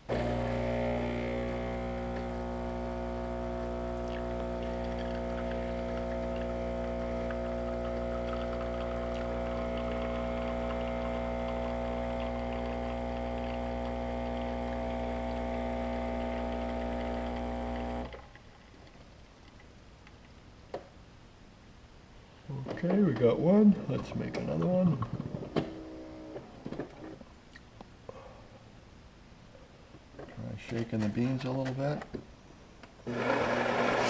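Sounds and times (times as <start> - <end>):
coffee machine pump humming: 0.0 - 18.3, 33.0 - 34.0.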